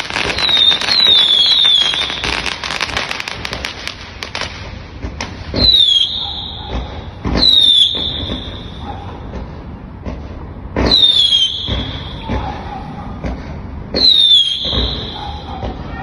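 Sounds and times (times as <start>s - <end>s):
fireworks crackling: 0.0s - 10.0s, 10.7s - 12.4s, 13.9s - 16.0s
fireworks bangs: 0.0s - 16.0s
high falling whistle: 7.4s - 8.8s, 14.0s - 15.4s.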